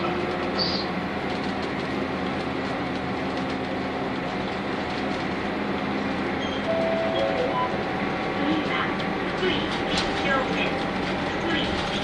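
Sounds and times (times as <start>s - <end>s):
bus engine hum and road noise: 0.0s - 12.0s
short steady tone: 6.4s - 7.8s.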